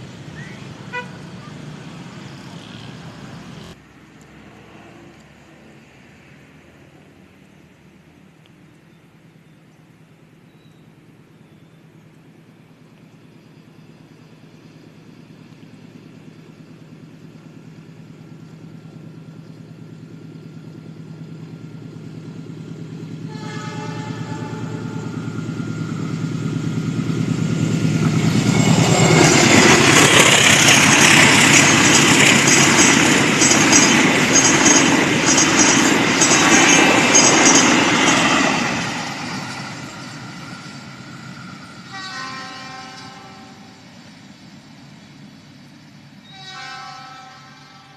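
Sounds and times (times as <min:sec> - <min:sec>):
diesel train engine hum: 0:00.0 - 0:47.9
train horn: 0:00.9 - 0:01.2, 0:23.2 - 0:25.4, 0:41.9 - 0:43.8, 0:46.2 - 0:47.9
train wheels clattering: 0:25.3 - 0:40.8.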